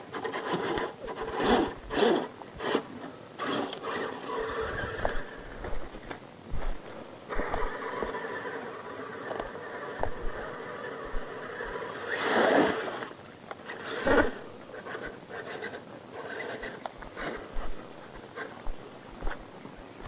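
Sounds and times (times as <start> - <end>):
toy truck motor whining: 0.1 - 5.8, 7.3 - 13.1, 13.7 - 17.6.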